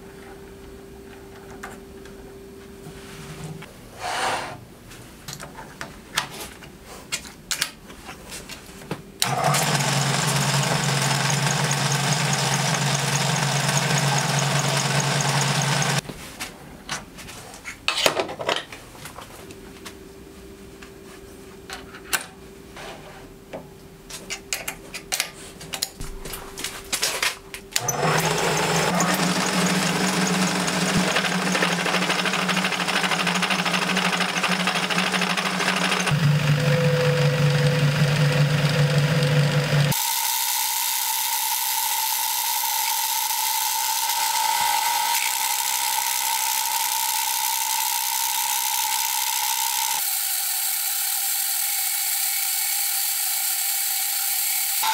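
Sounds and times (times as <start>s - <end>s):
metal lathe humming: 9.2s - 16.0s, 27.8s - 54.9s.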